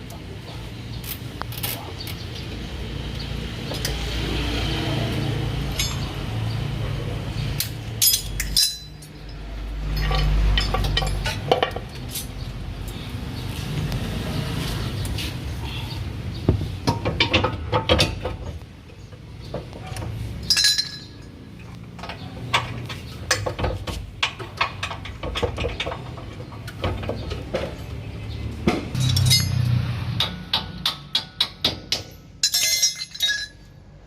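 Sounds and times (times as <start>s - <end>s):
metal tools clinking on steel: 5.7s - 6.2s, 7.6s - 13.0s, 19.8s - 27.9s, 29.0s - 33.8s.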